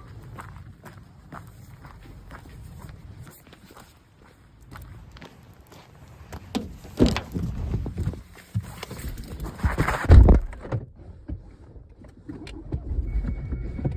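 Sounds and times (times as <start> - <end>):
footsteps: 0.0 - 10.1.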